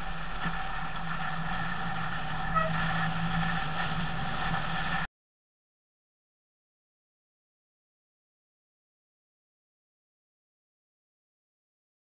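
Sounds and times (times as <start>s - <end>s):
car engine running: 0.0s - 5.1s
road noise: 0.0s - 5.1s.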